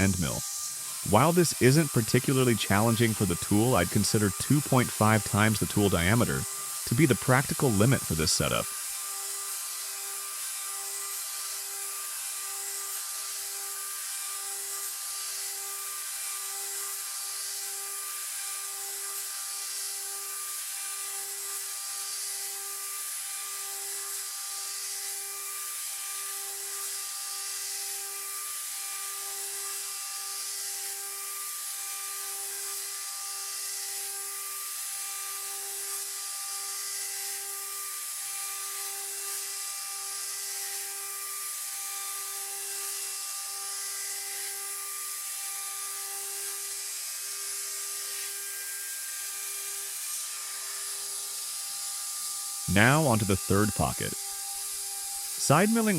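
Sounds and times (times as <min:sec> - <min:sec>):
cnc router milling metal: 0:00.4 - 0:07.6.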